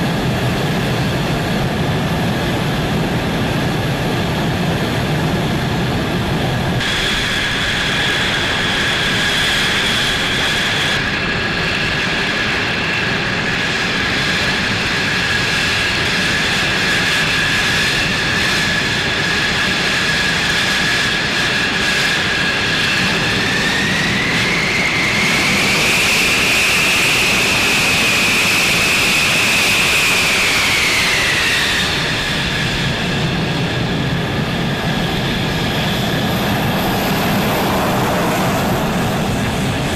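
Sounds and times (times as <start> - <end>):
jet engine whining: 0.0 - 39.9.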